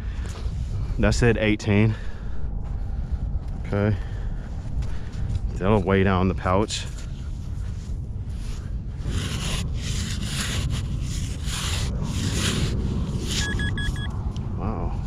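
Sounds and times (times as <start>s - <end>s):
sand scoop scraping through sand: 9.0s - 13.7s
metal detector beeps: 13.4s - 14.1s.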